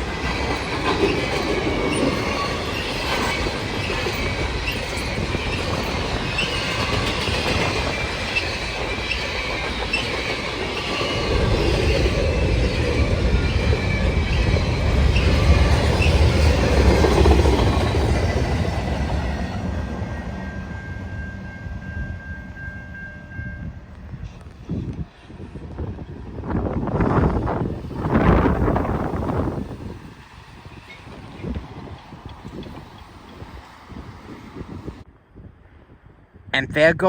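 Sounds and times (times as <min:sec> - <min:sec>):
train wheels clicking over rail joints: 0:00.0 - 0:19.8, 0:26.7 - 0:34.9
train wheels squealing: 0:00.0 - 0:35.0
deep train rumble: 0:00.0 - 0:36.6.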